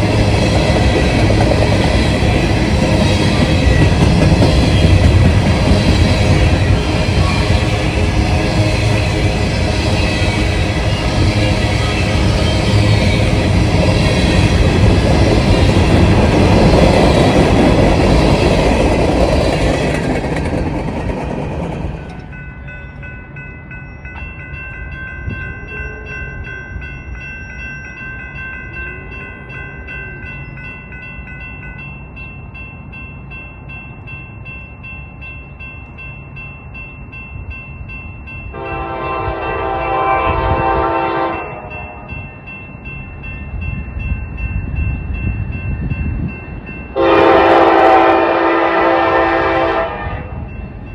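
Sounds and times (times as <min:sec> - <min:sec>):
freight train rumbling past: 0:00.0 - 0:50.9
diesel locomotive horn: 0:38.6 - 0:42.1, 0:47.0 - 0:50.5.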